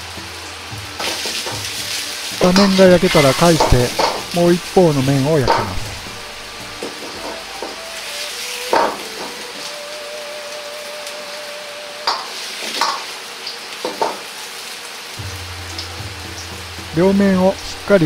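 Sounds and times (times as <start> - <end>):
radish sizzling in oil in a wok: 0.0 - 18.0
sharp knocks of a wok: 3.6 - 4.3, 8.7 - 9.4, 12.1 - 13.1, 13.8 - 14.2.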